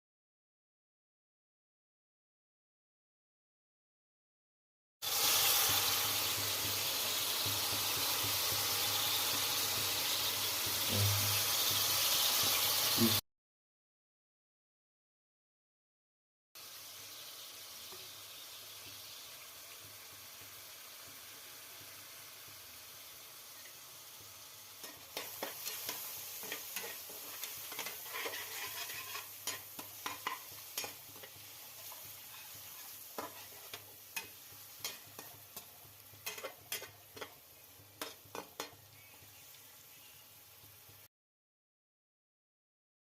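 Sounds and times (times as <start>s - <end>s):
food sizzling in a pan: 5.0s - 13.2s, 16.6s - 41.1s
spoon scraping a pan: 24.8s - 40.2s.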